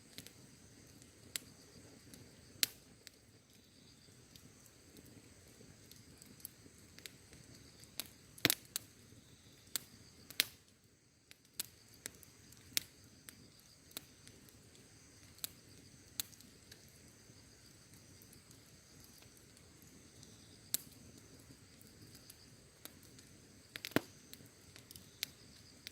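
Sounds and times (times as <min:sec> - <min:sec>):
faint hiss of burning: 0:00.0 - 0:25.9
wood fire crackling: 0:00.0 - 0:25.9
sharp pops and snaps: 0:00.1 - 0:09.0, 0:09.6 - 0:17.0, 0:17.7 - 0:25.9.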